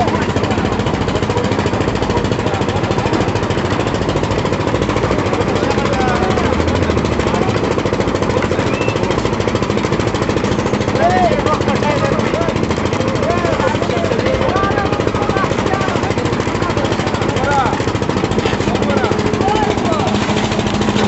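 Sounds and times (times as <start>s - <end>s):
concrete pouring machinery pulsing: 0.0s - 21.0s
faint rising and falling whistles: 8.6s - 9.1s.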